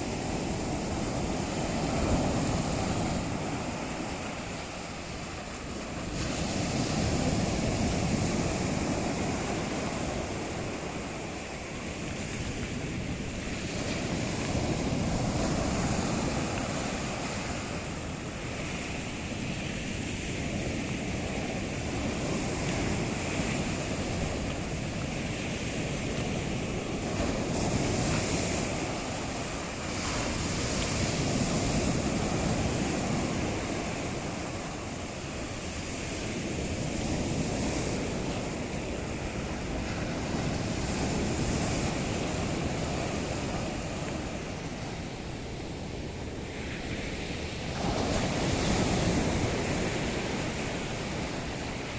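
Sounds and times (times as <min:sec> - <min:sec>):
waves breaking on shore: 0:00.0 - 0:51.9.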